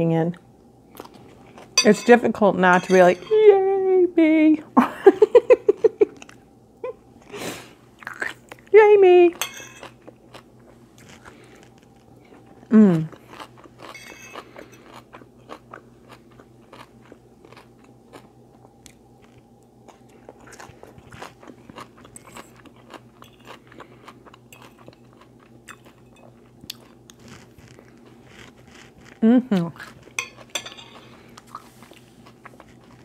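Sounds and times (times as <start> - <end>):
faint steady hum: 0.0 - 33.0
person chewing crunchy food: 0.9 - 1.8, 8.0 - 8.6, 9.8 - 33.0.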